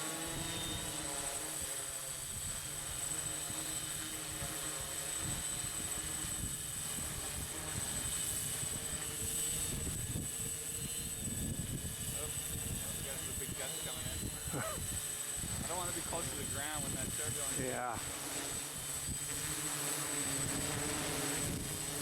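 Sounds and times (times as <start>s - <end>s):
drone propellers buzzing: 0.0s - 22.0s
wind buffeting microphone: 5.2s - 18.1s, 20.3s - 22.0s.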